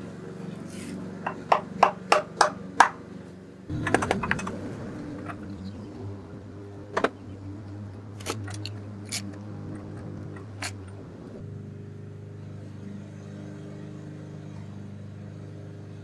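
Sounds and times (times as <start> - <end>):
steady low hum: 2.6 - 16.0
metal tools clicking: 8.2 - 11.1.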